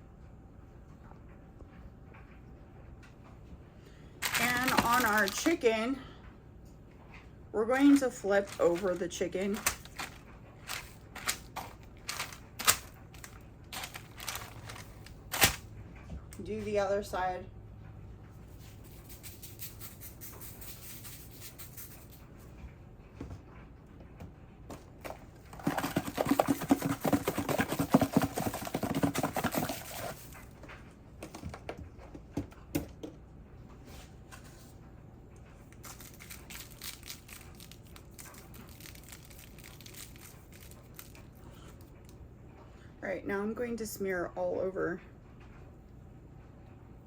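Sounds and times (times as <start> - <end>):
low steady hum: 0.0 - 47.0
rustling and crackling: 4.2 - 5.8, 7.7 - 16.2.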